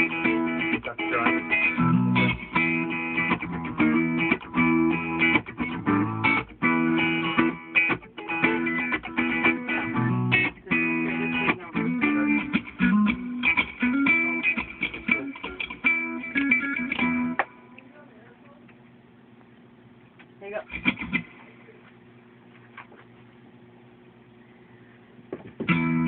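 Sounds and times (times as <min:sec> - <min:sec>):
low bass line: 0:00.0 - 0:07.6
choppy reggae chord stabs: 0:00.0 - 0:17.7, 0:25.6 - 0:26.0.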